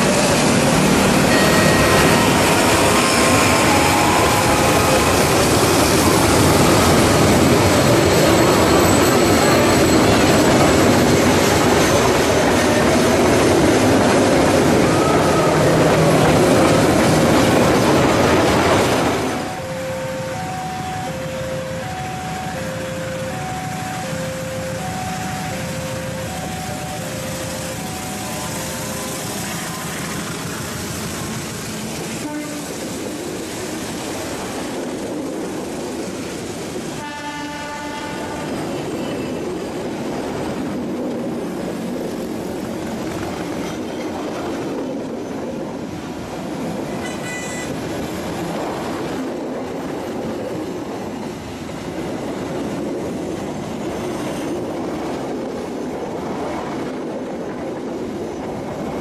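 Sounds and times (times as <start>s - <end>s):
train rumbling and rattling past: 0.0s - 59.0s
train horn blast: 1.3s - 5.4s, 32.2s - 32.8s, 37.0s - 38.7s, 47.0s - 47.7s.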